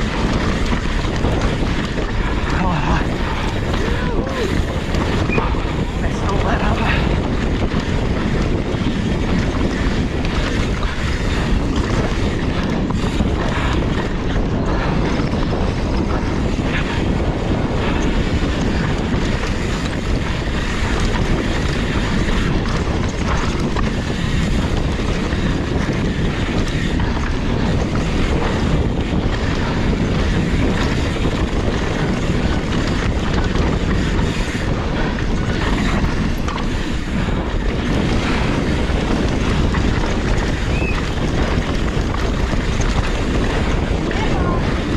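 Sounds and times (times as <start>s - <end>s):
bike knocks and rattles: 0.0s - 44.9s
wind rushing over microphone: 0.0s - 44.9s
tyre roar: 2.3s - 7.2s.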